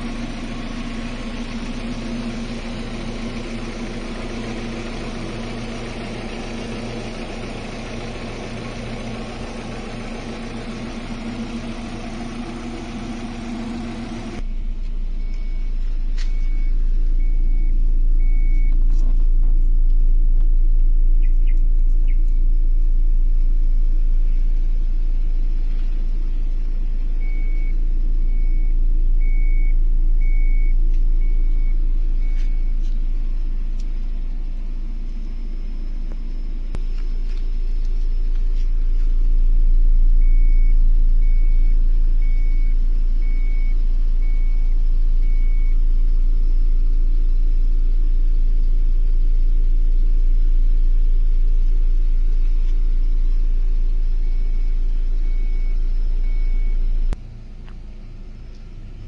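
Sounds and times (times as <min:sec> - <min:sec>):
car engine idling: 0:00.0 - 0:59.0
car warning chime beeping: 0:09.9 - 0:18.8, 0:27.2 - 0:38.6, 0:40.2 - 0:45.8, 0:54.2 - 0:57.2.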